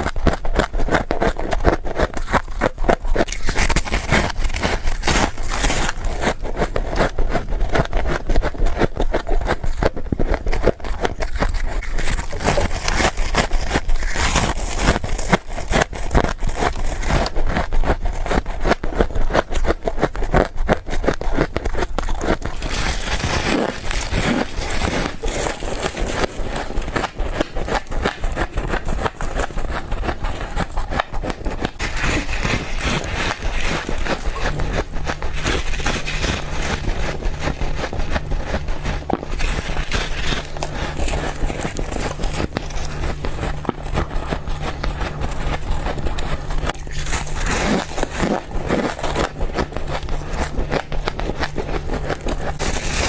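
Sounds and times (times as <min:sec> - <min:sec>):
frost being chewed crunching: 0:00.0 - 0:53.0.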